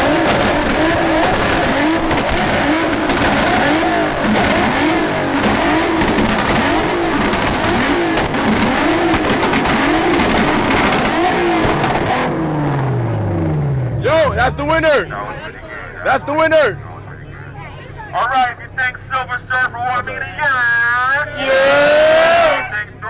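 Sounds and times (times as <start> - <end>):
car engine popping on rev limiter: 0.0 - 14.0.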